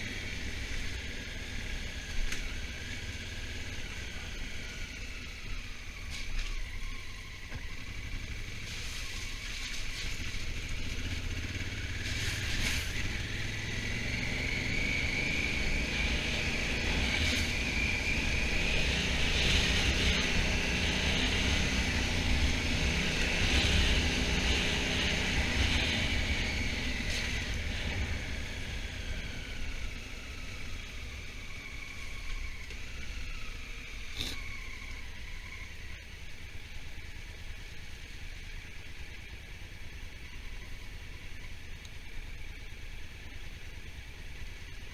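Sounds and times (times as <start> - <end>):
motorcycle engine whine: 0.0 - 44.9
low wind rumble: 10.0 - 35.8.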